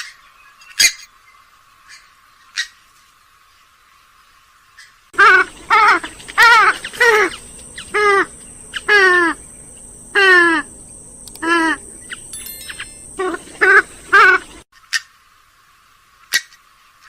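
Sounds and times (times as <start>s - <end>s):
swamphen harsh nasal calls: 5.2s - 12.3s, 13.1s - 14.6s.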